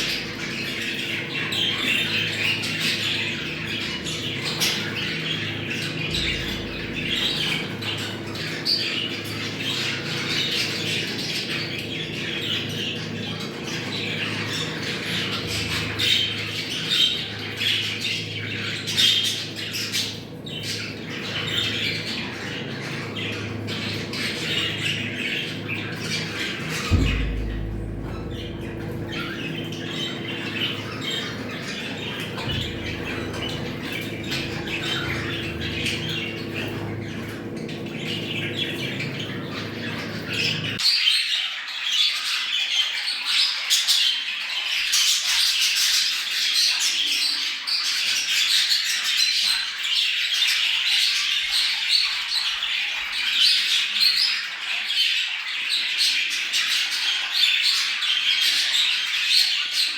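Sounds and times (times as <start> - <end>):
budgerigars chattering: 0.0 - 40.8
low steady hum: 2.9 - 8.6, 20.2 - 40.8.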